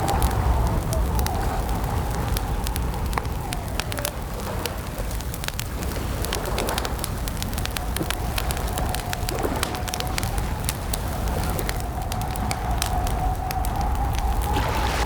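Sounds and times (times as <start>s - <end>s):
campfire crackling and popping: 0.0s - 15.0s
low rumble: 13.4s - 15.0s.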